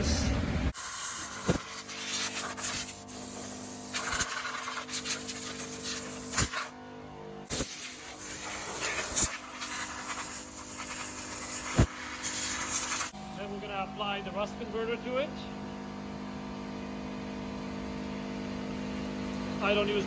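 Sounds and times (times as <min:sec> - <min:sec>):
stiff brush scrubbing rusty metal: 0:00.8 - 0:06.7, 0:07.6 - 0:13.2.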